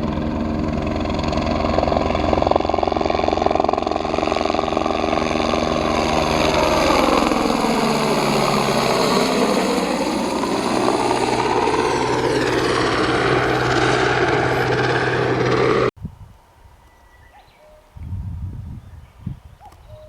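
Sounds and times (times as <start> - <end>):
engine running: 0.0 - 15.9.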